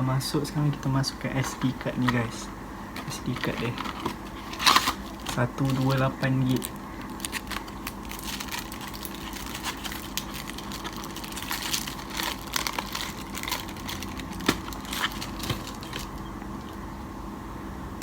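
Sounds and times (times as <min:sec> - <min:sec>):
plastic packaging crinkling: 0:03.0 - 0:16.8.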